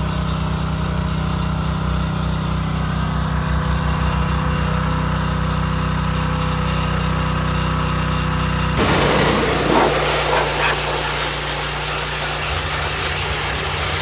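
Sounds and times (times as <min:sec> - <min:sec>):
high-pressure water spray hissing: 0:08.8 - 0:14.0
pressure washer pump humming: 0:08.8 - 0:14.0.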